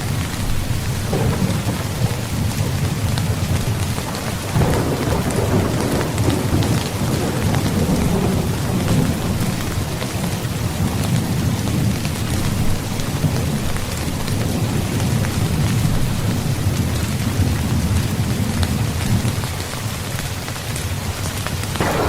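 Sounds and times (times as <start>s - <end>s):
thunder rumbling: 0.0s - 16.8s, 21.8s - 22.0s
heavy rain: 0.0s - 22.0s.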